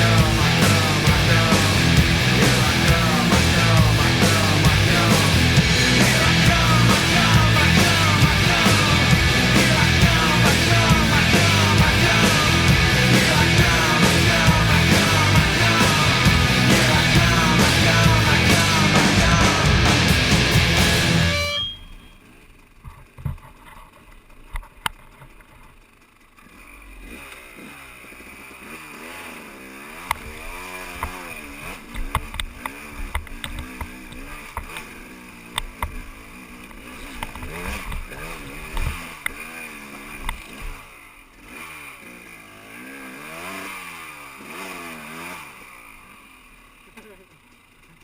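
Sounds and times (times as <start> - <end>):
dirt bike engine revving: 0.0 - 48.0
sharp clicks and knocks: 31.9 - 34.9, 35.5 - 36.0, 36.7 - 39.4.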